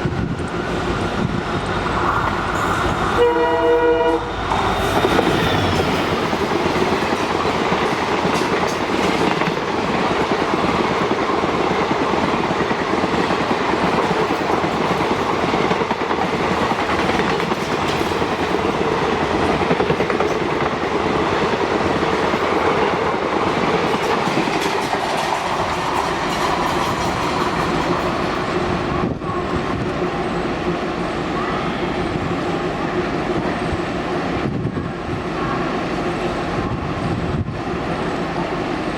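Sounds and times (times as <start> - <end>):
train wheel and rail rush: 0.0 - 38.9.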